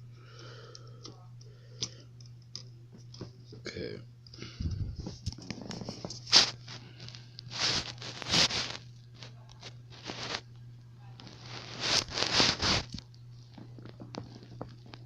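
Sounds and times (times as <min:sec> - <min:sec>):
steady low hum: 0:00.0 - 0:15.0
rustling and scraping handling: 0:04.6 - 0:10.5, 0:11.1 - 0:15.0.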